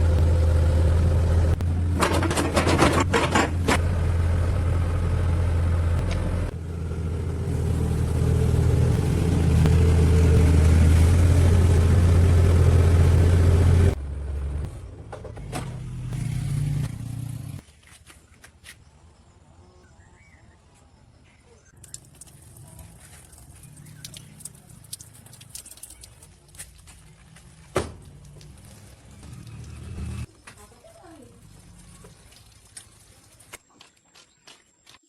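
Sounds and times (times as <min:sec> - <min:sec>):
engine running: 0:00.0 - 0:17.6, 0:27.0 - 0:30.3.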